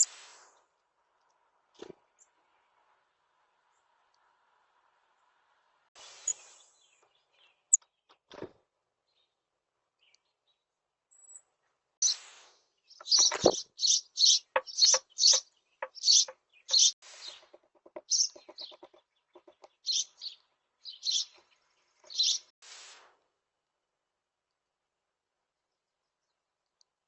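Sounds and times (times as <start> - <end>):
small birds chirping: 6.0 - 8.4, 9.0 - 22.5.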